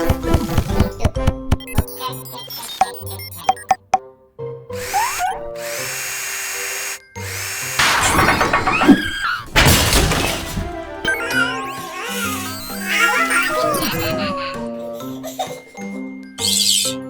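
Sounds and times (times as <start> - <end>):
background music: 7.2 - 17.0
clattering crash bursts: 7.6 - 13.0.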